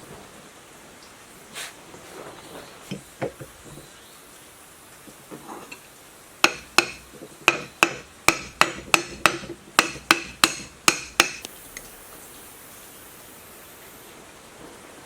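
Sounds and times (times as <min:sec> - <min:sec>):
hammer striking metal: 0:06.4 - 0:11.5.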